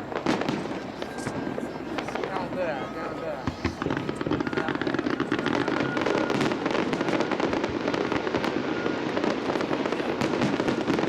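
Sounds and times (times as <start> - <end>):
fireworks crackling and popping: 0.0 - 11.0
rumble of firework bursts: 0.0 - 11.0.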